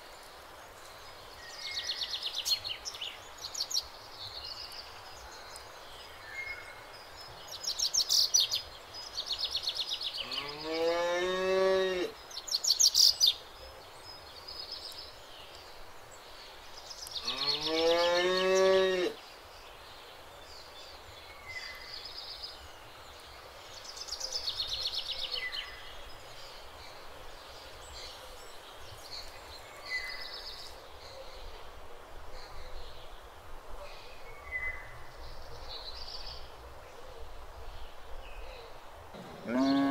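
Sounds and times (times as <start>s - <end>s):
cow mooing: 10.2s - 12.1s, 39.2s - 39.9s.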